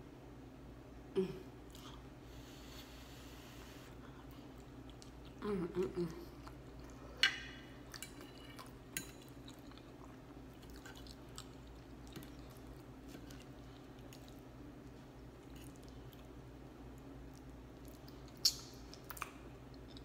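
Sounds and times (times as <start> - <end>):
person chewing food: 3.9 - 5.4, 6.3 - 20.0.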